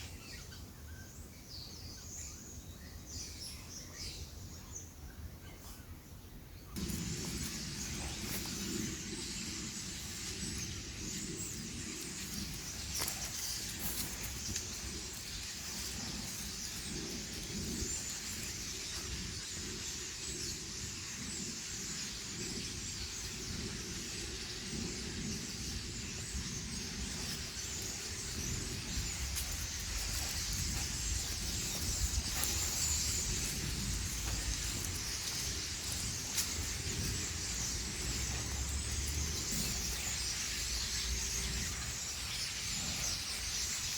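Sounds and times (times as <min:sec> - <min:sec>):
steady outdoor hiss: 0:00.0 - 0:43.9
wild birds chirping: 0:00.0 - 0:43.9
low rumble: 0:26.2 - 0:42.0.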